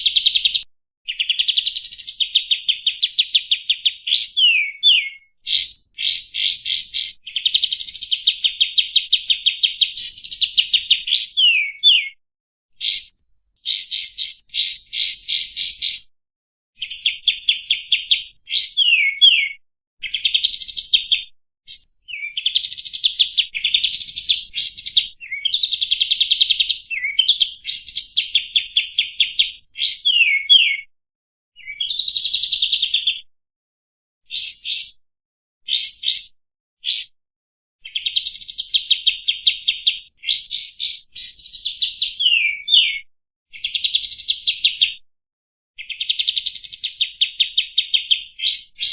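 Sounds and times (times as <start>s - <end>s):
bird singing rapid trills: 0.2s - 12.1s, 12.8s - 16.1s, 21.7s - 30.8s, 34.4s - 35.0s, 35.7s - 36.3s, 36.9s - 37.1s, 37.8s - 43.0s, 45.8s - 48.9s.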